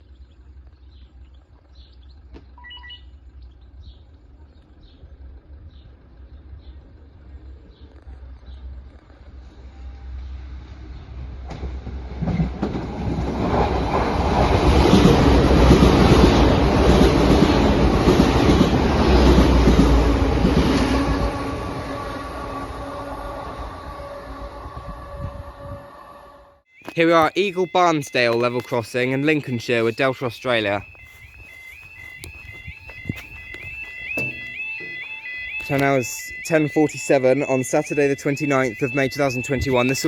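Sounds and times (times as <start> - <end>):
train passing: 9.0 - 26.5, 29.3 - 40.0.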